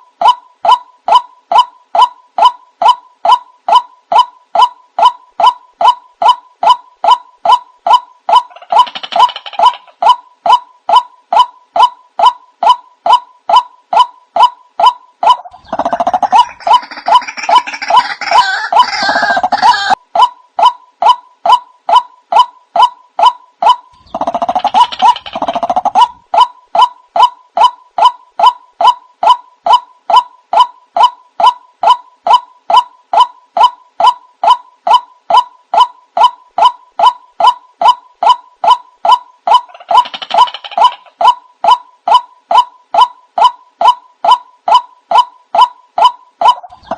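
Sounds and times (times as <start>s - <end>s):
harsh bird calling: 0.2s - 20.0s, 20.6s - 46.9s.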